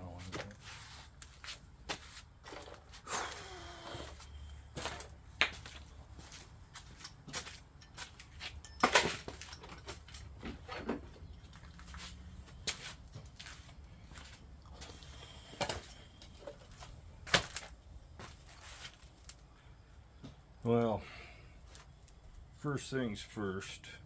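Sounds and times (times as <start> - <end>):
hand tools clicking and knocking: 6.9 - 11.9.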